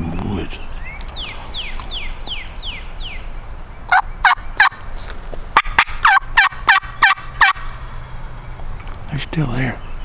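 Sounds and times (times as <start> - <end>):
loud turkey yelps: 3.9 - 4.8, 5.6 - 7.8.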